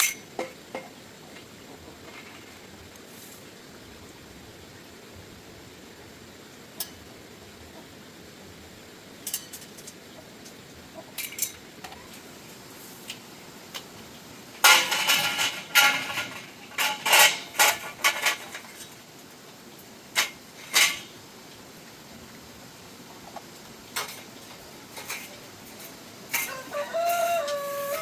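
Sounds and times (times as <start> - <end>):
metal pieces clanking: 14.6 - 18.9.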